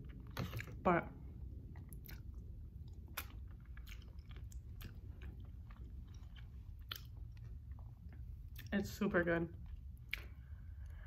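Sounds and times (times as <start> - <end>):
person chewing soft food: 0.0 - 8.7, 9.6 - 11.0
low background hum: 0.0 - 11.0
wet mouth clicks and smacks: 10.0 - 10.4.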